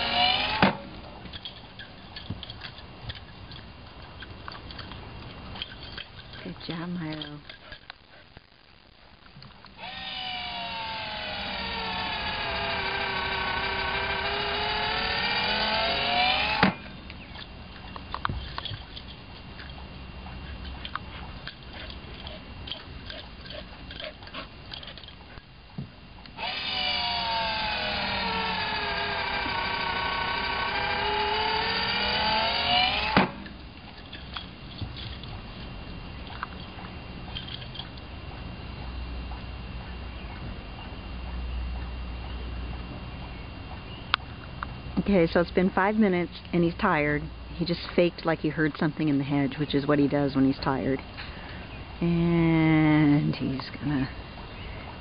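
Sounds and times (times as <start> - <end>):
ball launcher motor whining: 0.0 - 1.5, 9.7 - 19.8, 20.6 - 39.6.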